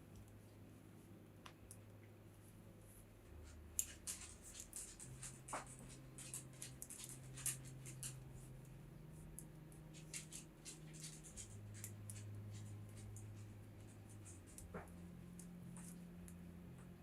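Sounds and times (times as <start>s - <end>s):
knitting needles clicking: 3.4s - 17.0s.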